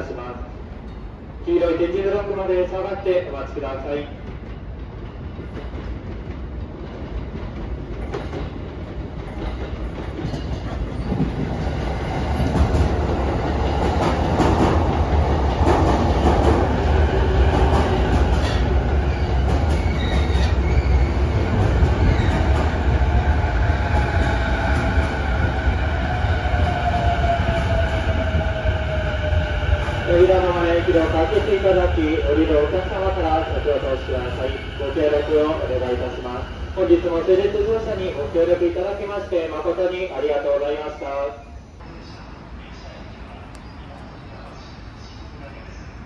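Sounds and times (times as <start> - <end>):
train wheels rumbling on rails: 0.5 - 40.4
wheels clacking over rail joints: 4.2 - 16.8
train brakes whining: 17.6 - 21.3.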